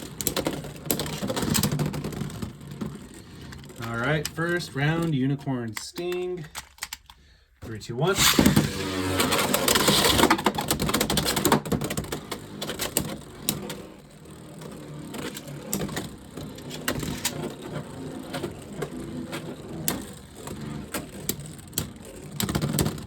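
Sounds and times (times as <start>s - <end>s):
spinning tops whirring: 8.1s - 23.0s.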